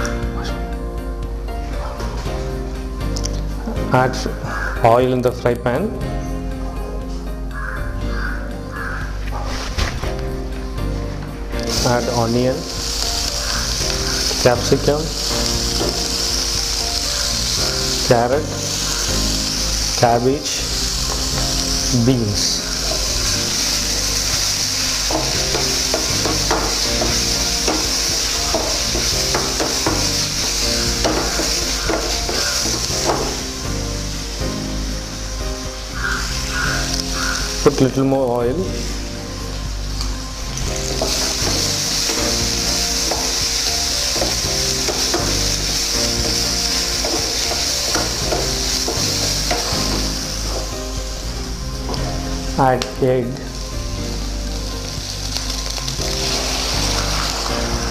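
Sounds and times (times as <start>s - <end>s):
vegetables sizzling in oil: 7.6s - 57.9s
spatula scraping pan: 22.5s - 33.6s, 40.8s - 50.7s.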